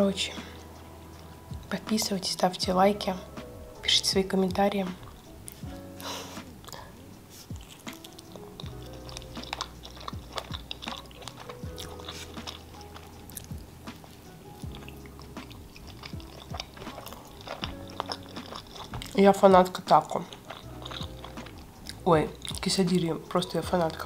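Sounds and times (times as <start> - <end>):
quiet background music: 0.0 - 24.0
close chewing with wet clicks: 7.5 - 24.0.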